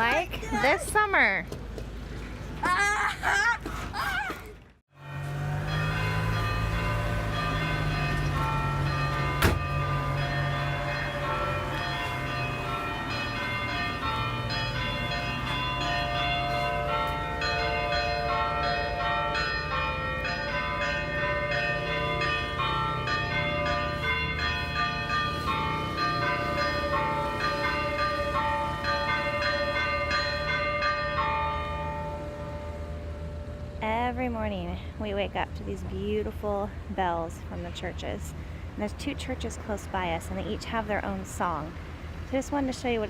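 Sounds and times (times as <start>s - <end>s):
church bells ringing: 5.0s - 34.9s.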